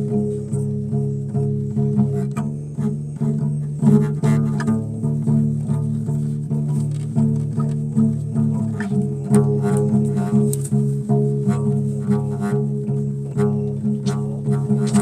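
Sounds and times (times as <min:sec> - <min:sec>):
plucked bass guitar notes: 0:00.0 - 0:15.0.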